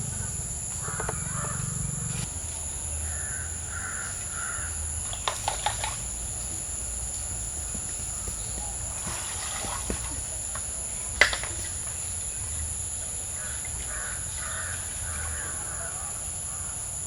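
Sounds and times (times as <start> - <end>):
bird calling: 0.0 - 17.0
high-pitched whine: 0.0 - 17.0.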